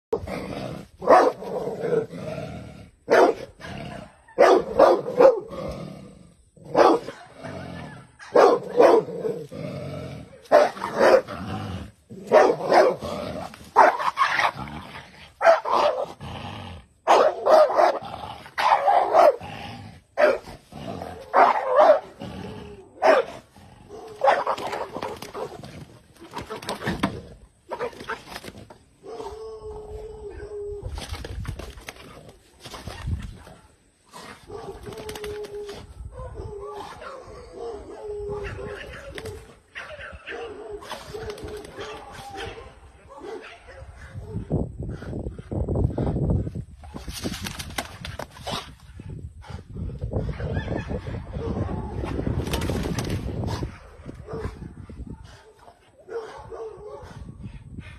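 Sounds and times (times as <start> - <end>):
dog barking: 1.0 - 1.4, 3.1 - 3.5, 4.4 - 5.4, 6.7 - 7.6, 8.2 - 9.1, 10.4 - 11.3, 12.3 - 13.0, 13.8 - 14.0, 15.4 - 16.0, 17.1 - 18.0, 18.6 - 19.4, 20.2 - 20.5, 21.3 - 22.1, 23.0 - 25.5, 39.8 - 44.5, 53.8 - 57.2.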